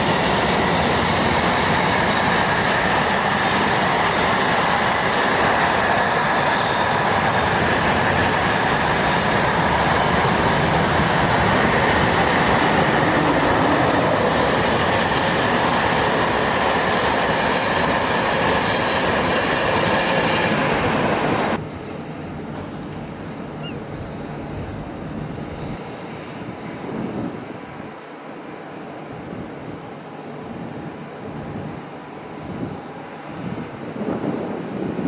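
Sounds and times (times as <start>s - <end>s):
train wheels rumbling on rails: 0.0s - 26.3s.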